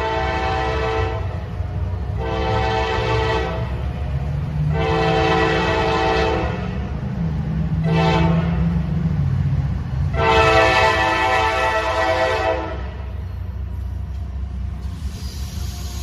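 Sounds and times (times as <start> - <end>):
locomotive air horn blasts: 0.0 - 1.6, 2.2 - 3.8, 4.7 - 6.8, 7.8 - 8.7, 10.1 - 13.2
passing train rumble: 0.0 - 16.0.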